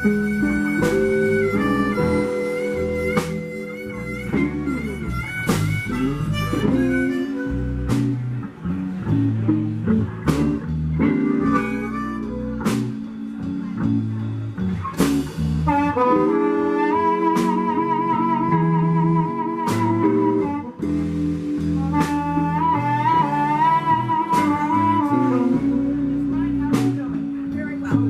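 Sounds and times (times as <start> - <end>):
harmonica: 0.0 - 8.4, 11.2 - 13.4
drums: 0.0 - 28.0
electric guitar: 0.0 - 28.0.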